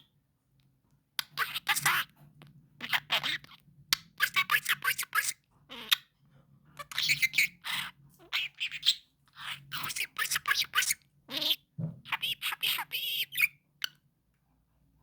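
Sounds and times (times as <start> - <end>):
budgerigar chattering and chirping: 1.2 - 2.2, 2.8 - 6.1, 6.8 - 14.0.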